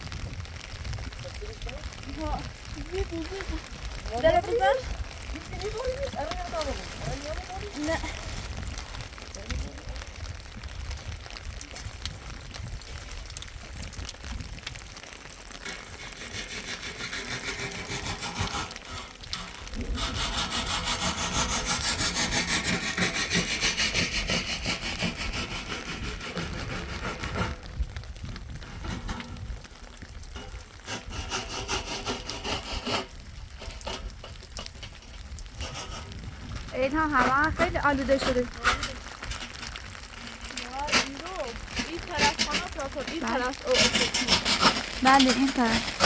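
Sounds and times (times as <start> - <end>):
sawing-like rasping: 15.6 - 27.6, 30.9 - 33.1, 43.7 - 46.0.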